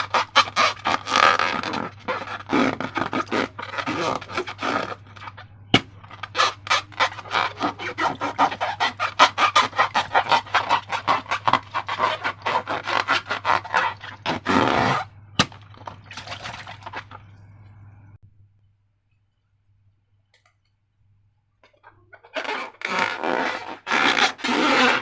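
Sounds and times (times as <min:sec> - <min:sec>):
slime squishing: 0:00.0 - 0:17.6.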